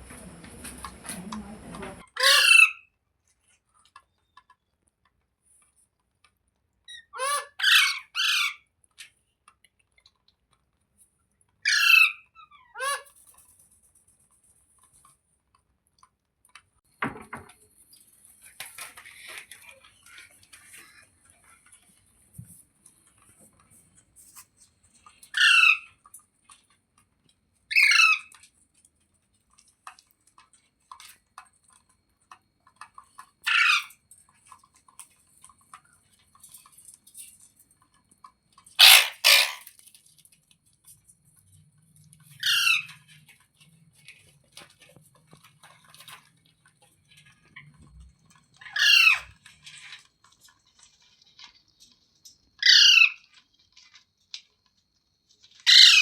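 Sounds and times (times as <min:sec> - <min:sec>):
parrot squawking: 0:02.1 - 0:02.9, 0:06.9 - 0:08.6, 0:11.6 - 0:13.1, 0:25.3 - 0:25.9, 0:27.7 - 0:28.3, 0:33.4 - 0:33.9, 0:38.8 - 0:39.7, 0:42.4 - 0:43.0, 0:48.6 - 0:49.3, 0:52.6 - 0:53.2, 0:55.6 - 0:56.0.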